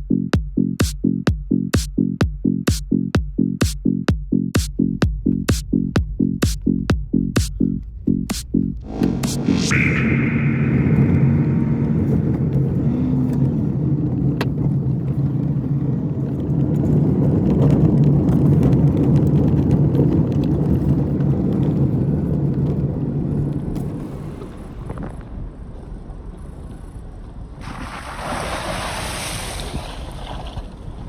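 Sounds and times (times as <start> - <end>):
car engine and road noise: 4.4 - 28.0.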